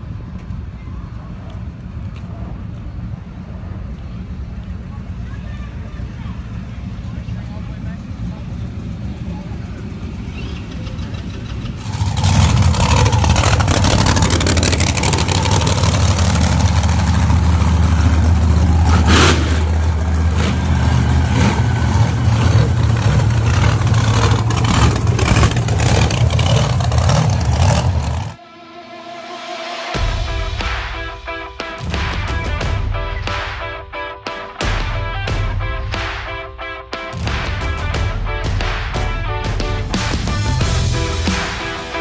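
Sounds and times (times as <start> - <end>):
truck engine running hard: 2.5 - 28.4, 37.3 - 42.0.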